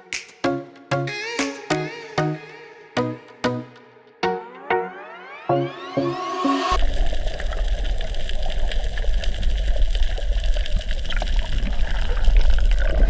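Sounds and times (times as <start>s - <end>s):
water rumbling and crackling: 6.8s - 13.0s.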